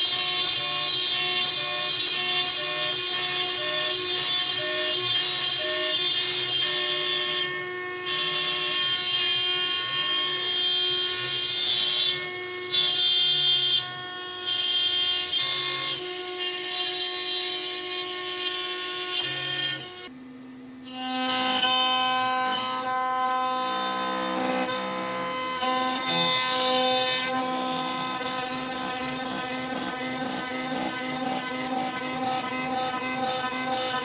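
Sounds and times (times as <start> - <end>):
router spindle whine: 0.0 - 34.0.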